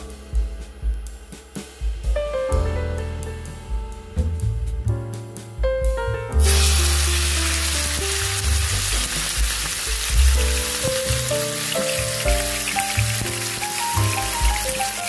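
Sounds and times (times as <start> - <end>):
background music: 0.0 - 15.0
chicken sizzling in hot oil: 6.4 - 15.0.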